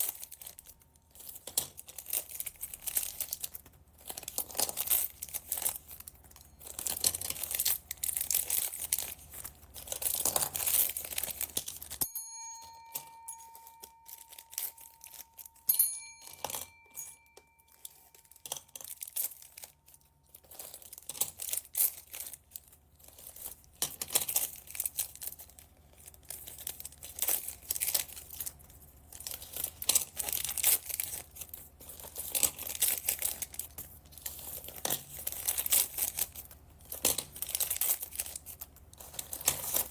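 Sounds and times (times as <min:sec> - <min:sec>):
plastic bags tearing: 0:00.0 - 0:12.0, 0:17.8 - 0:39.9
plastic bags crinkling: 0:00.0 - 0:39.9
clear ringing tones: 0:12.0 - 0:18.8.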